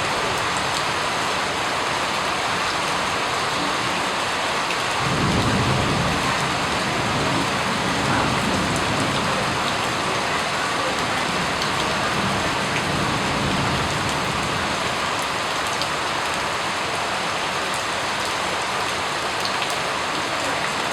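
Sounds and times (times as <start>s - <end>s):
rain falling: 0.0s - 20.9s
thunder rumbling: 5.0s - 14.9s.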